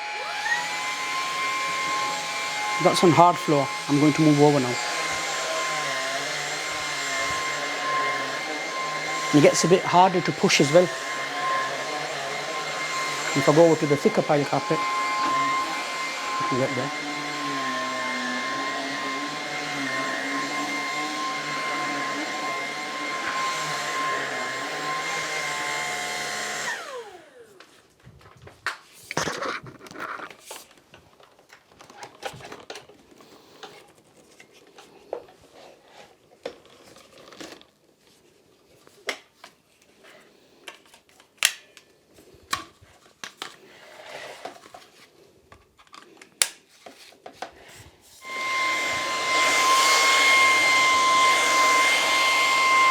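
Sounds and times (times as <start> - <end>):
stick vacuum whining: 0.0 - 27.7, 47.4 - 52.9.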